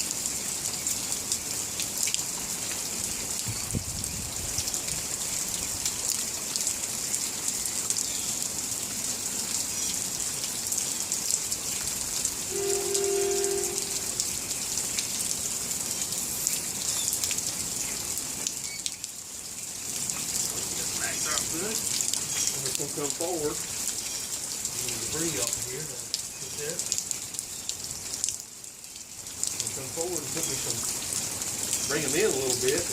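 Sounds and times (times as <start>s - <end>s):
rain falling: 0.0s - 32.9s
steady tone with overtones: 12.5s - 14.2s.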